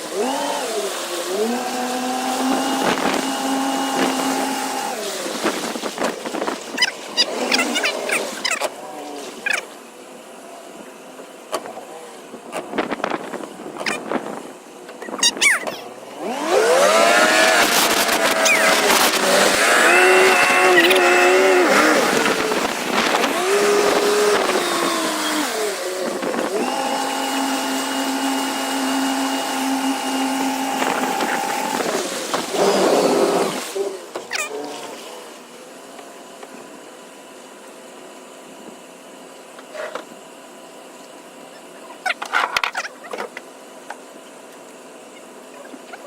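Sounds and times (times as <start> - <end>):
boat engine revving: 0.0 - 36.3.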